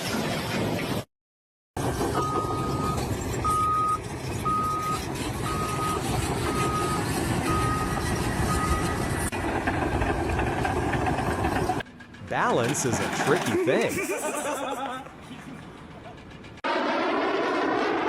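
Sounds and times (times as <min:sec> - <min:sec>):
engine rumble: 0:01.8 - 0:18.0
reversing alarm beeping: 0:02.2 - 0:09.3.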